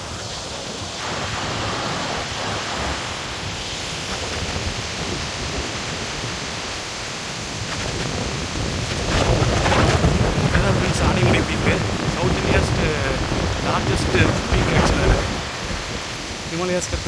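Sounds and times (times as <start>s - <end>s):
wind rushing across microphone: 0.0s - 17.0s.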